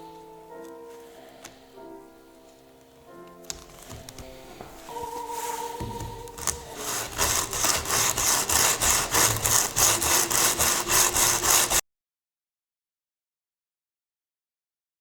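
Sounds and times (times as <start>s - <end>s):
handsaw sawing wood: 5.5s - 11.8s.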